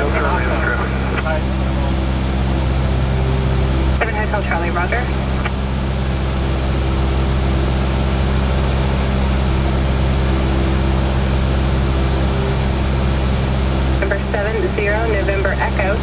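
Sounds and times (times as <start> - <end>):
airplane engine and propeller: 0.0 - 16.0.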